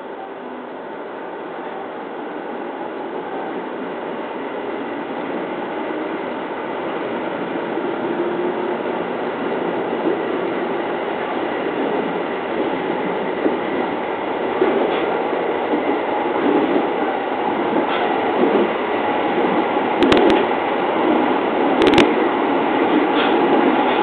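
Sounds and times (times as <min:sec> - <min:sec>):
train wheels rumbling in tunnel: 0:00.0 - 0:24.0.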